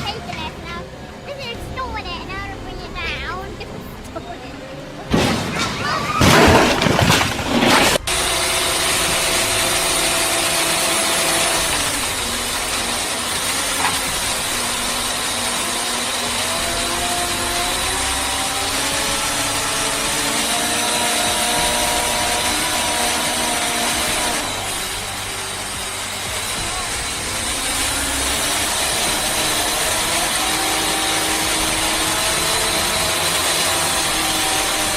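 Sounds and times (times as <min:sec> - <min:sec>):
loud burst of noise: 0:05.1 - 0:34.9
machine engine running: 0:06.2 - 0:34.9.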